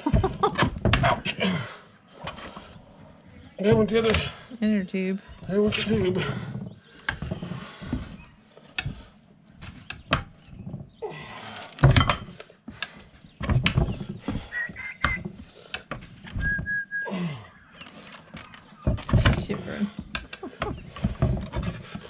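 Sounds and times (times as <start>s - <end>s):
rubber scraping: 12.7s - 16.9s, 17.8s - 22.0s.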